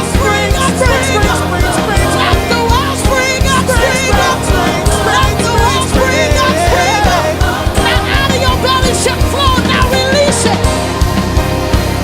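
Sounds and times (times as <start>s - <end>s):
bass: 0.0s - 12.0s
drum beat: 0.0s - 12.0s.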